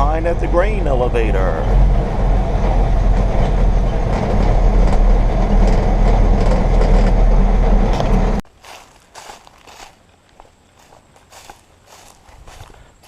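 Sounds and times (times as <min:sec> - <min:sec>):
truck engine rumbling and rattling: 0:00.0 - 0:08.4.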